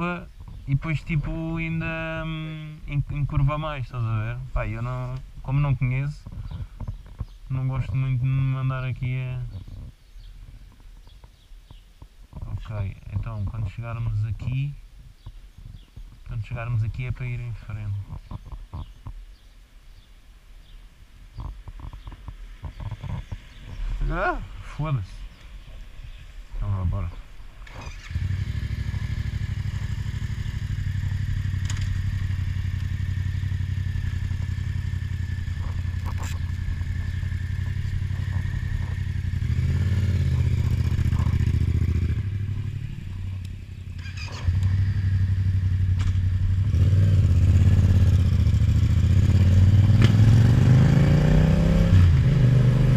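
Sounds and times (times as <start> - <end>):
motorcycle accelerating: 27.6 - 52.9
motorcycle engine idling: 27.9 - 49.9.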